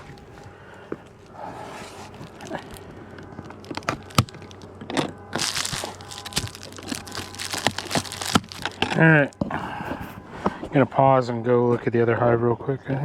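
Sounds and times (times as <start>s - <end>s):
rustling scrape: 1.2s - 9.2s.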